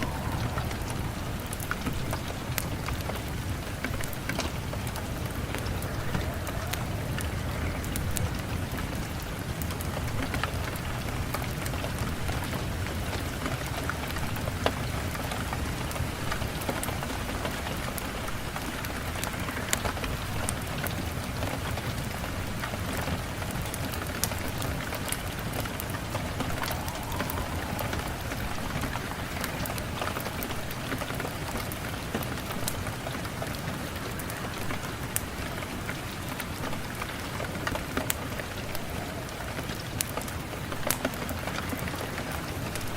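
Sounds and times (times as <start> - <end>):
low rumble: 0.0 - 9.3, 25.6 - 30.9
sharp crackles and drips: 0.0 - 42.9
steady rain: 0.0 - 42.9.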